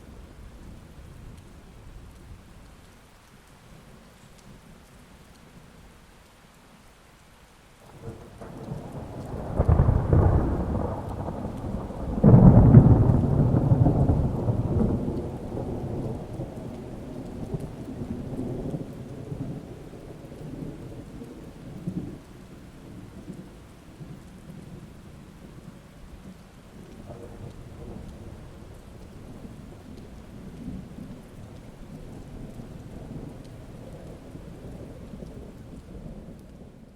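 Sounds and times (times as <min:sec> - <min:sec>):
steady rain: 0:00.0 - 0:36.9
thunder rumbling: 0:07.8 - 0:36.9
thunder crack: 0:08.1 - 0:16.8.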